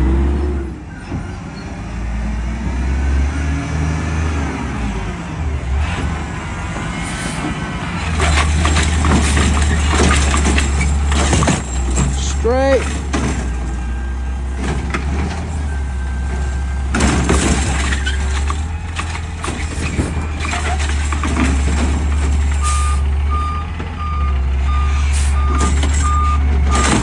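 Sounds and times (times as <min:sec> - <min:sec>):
truck engine droning: 0:00.0 - 0:27.0
metal clanks: 0:07.4 - 0:23.2, 0:25.0 - 0:27.0
reversing alarm beeping: 0:22.5 - 0:27.0.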